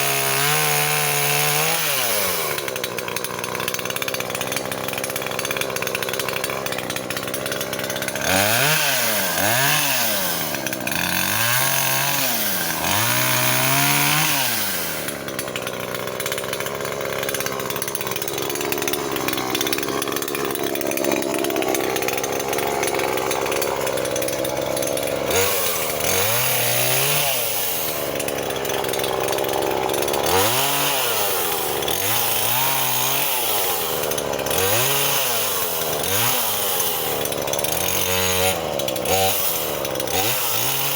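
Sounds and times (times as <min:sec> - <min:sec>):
chainsaw revving and cutting: 0:00.0 - 0:40.9.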